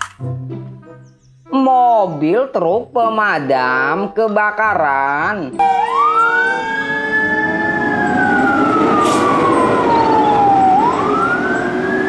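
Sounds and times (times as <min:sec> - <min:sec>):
truck rumbling: 0:04.6 - 0:12.0
fire engine siren wailing: 0:05.5 - 0:12.0.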